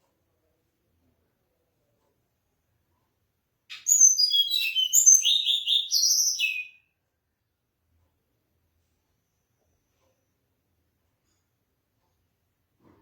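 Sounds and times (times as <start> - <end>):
bird singing whistled notes: 3.7 - 6.9.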